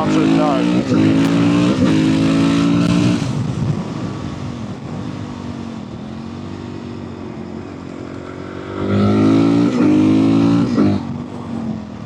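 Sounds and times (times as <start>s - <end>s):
motorcycle engine: 0.0s - 12.0s.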